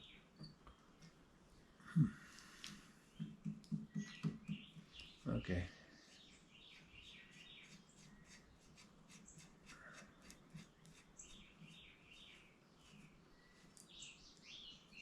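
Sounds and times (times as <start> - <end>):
faint bird chirps: 0.0 - 15.0
faint clicks: 2.3 - 4.4.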